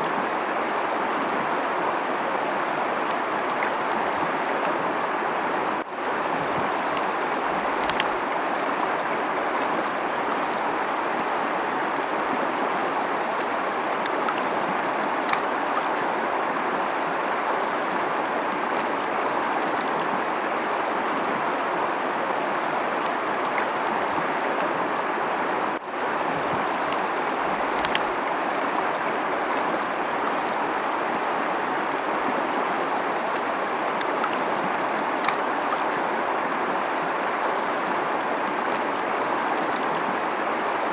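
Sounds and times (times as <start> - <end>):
river rushing over rocks: 0.0 - 40.9.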